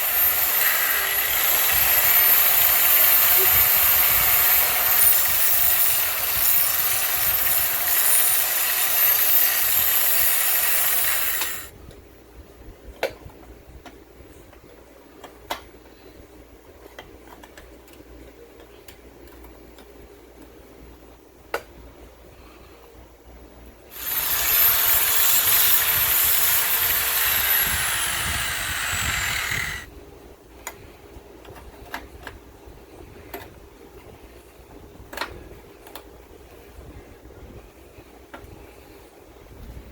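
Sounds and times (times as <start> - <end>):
angle grinder whining on metal: 0.0 - 11.7, 23.9 - 29.9.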